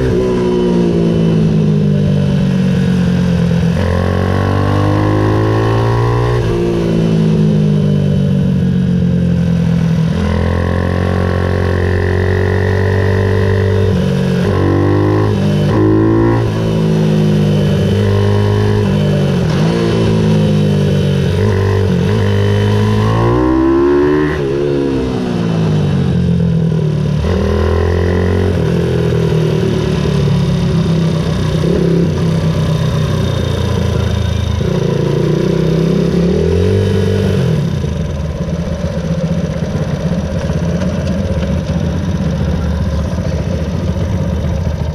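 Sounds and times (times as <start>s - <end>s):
minibike engine revving: 8.9s - 26.4s.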